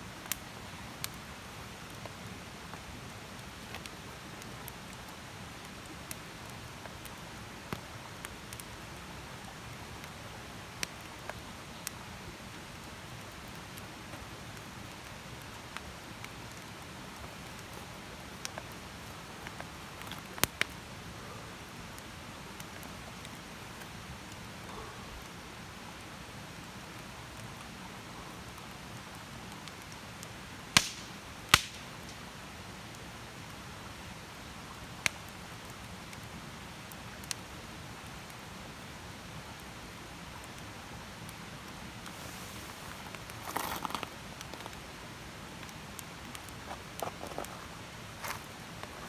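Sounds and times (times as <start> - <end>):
campfire hissing and popping: 0.0 - 49.0
rustling crackle: 41.9 - 44.9, 45.6 - 49.0.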